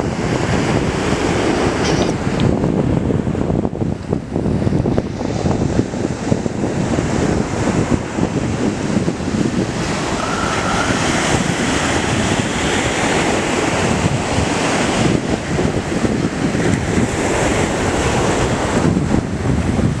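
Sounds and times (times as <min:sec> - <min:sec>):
wind buffeting microphone: 0:00.0 - 0:20.0
surf washing onto beach: 0:04.4 - 0:20.0.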